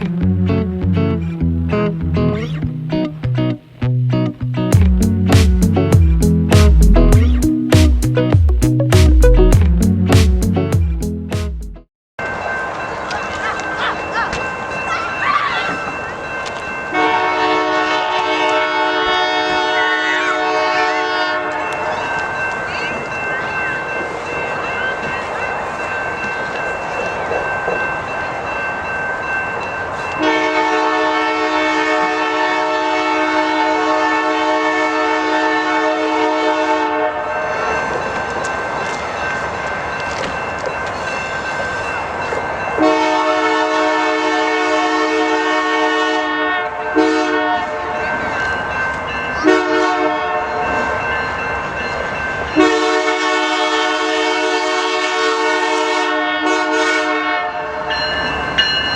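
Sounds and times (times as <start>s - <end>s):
passing train rumble: 0.0s - 11.3s, 12.2s - 58.9s
locomotive air horn blasts: 16.9s - 21.7s, 30.2s - 37.3s, 42.8s - 48.0s, 49.4s - 50.6s, 52.6s - 57.8s.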